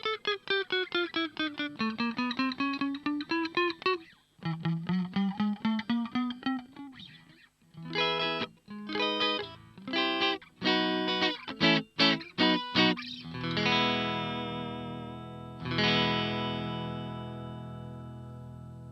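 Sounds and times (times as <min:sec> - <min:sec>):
electric guitar chords: 0:00.0 - 0:18.9.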